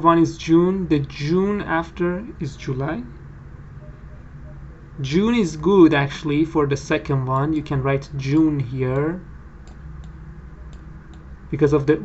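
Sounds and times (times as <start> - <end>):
low hum with faint hiss: 0.0 - 12.0
faint brief tone: 3.8 - 4.9.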